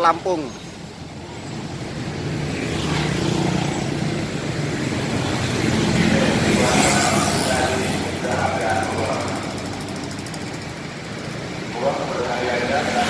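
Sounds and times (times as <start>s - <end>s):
bus engine droning: 4.2s - 13.0s.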